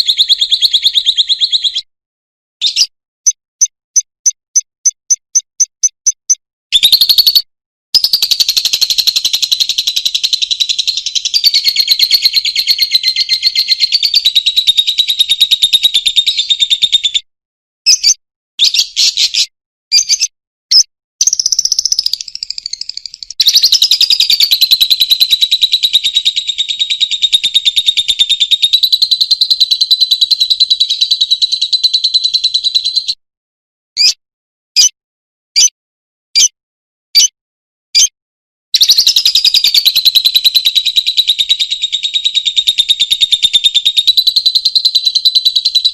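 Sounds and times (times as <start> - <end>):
lovebird chattering trill: 2.6 - 2.9, 4.2 - 17.1, 17.9 - 33.2, 38.8 - 45.9
lovebird short chirps: 2.6 - 8.2, 17.9 - 24.5, 35.6 - 35.8, 37.2 - 37.4.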